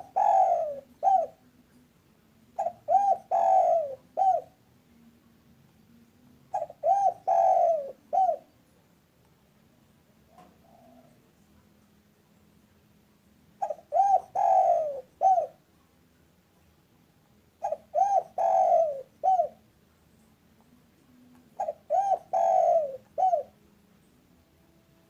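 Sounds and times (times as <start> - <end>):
dove cooing: 0.0 - 1.6, 2.5 - 4.6, 6.4 - 8.6, 10.3 - 11.3, 13.6 - 15.7, 17.6 - 19.6, 21.1 - 23.6.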